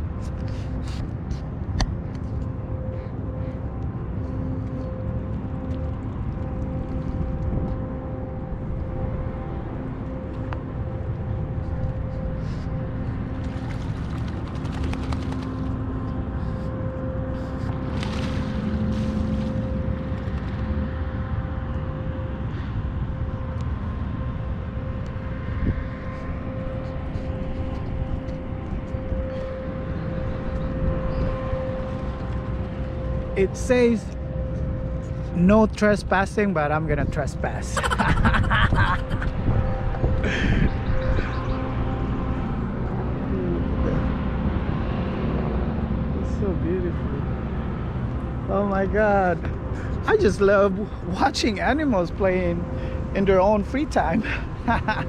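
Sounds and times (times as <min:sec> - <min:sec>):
engine drone: 0:00.0 - 0:55.0
wind on microphone: 0:06.2 - 0:09.6, 0:37.4 - 0:46.1.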